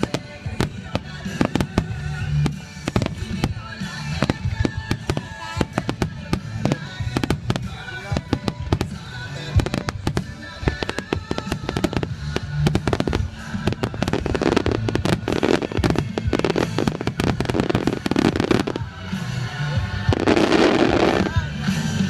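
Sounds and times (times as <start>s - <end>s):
fireworks bangs and crackles: 0.0s - 22.0s
music: 0.0s - 22.0s.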